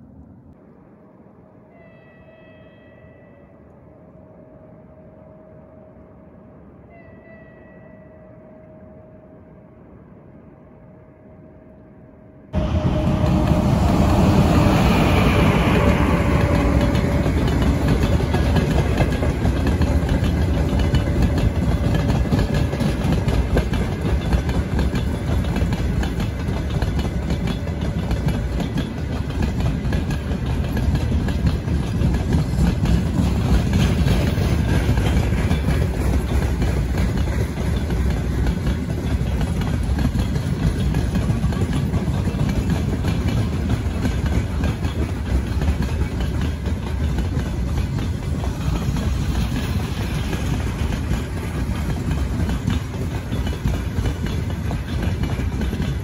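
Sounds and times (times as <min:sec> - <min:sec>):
vehicle engine rumbling: 0:12.6 - 0:56.0.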